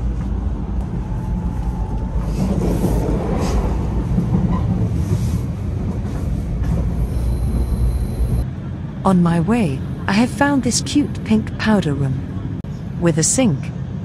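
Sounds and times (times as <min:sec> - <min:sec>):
train rumbling from inside carriage: 0:00.0 - 0:14.0.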